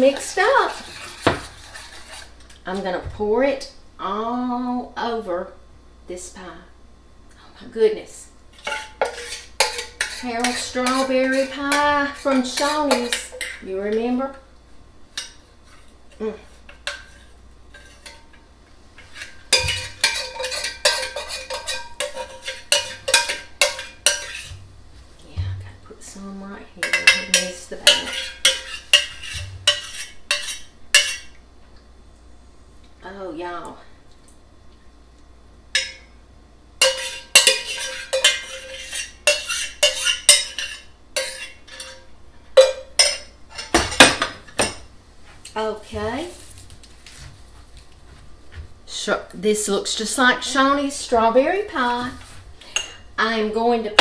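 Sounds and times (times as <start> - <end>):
spoon clinking against saucepan: 8.6 - 13.6, 19.5 - 24.5, 26.8 - 31.4, 35.8 - 36.1, 36.8 - 44.8
metal spoon knocking on saucepan: 19.5 - 24.4, 26.8 - 31.2.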